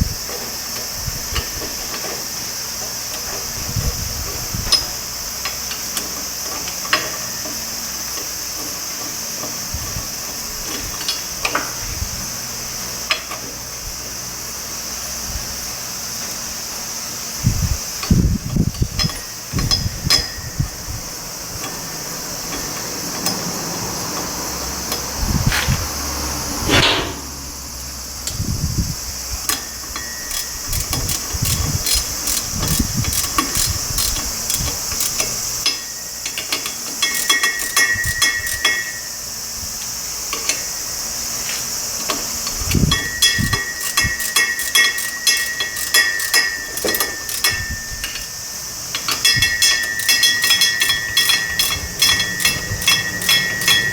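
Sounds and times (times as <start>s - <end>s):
steady high hiss: 0.0s - 53.9s
thud: 26.7s - 27.3s
rapid metallic clicking: 29.5s - 39.0s, 42.9s - 48.3s, 48.9s - 53.9s.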